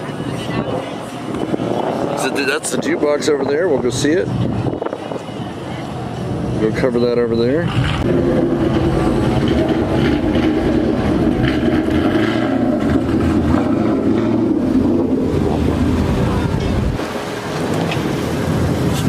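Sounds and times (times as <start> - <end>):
wind buffeting microphone: 0.0 - 19.0
low hum: 5.9 - 19.0.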